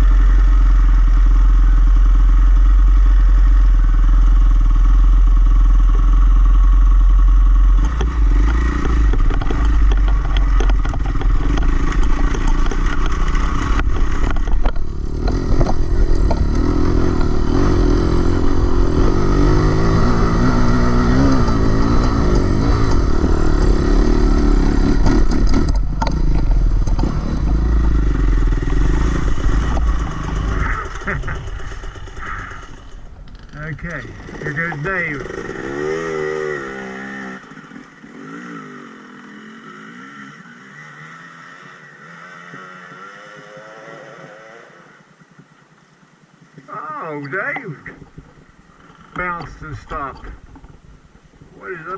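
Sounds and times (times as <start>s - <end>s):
dirt bike engine revving: 0.0s - 45.1s, 46.7s - 51.9s
clatter: 7.7s - 35.7s.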